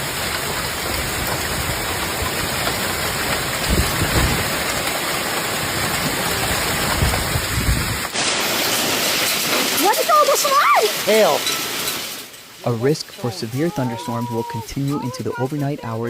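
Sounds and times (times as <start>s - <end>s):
low rumbles: 0.0s - 8.2s
heavy rain pouring: 0.0s - 16.0s.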